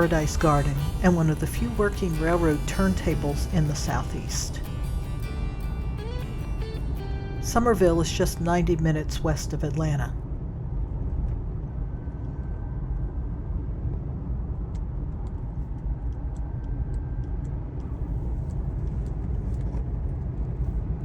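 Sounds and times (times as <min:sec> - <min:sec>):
car driving rumble: 0:00.0 - 0:10.0.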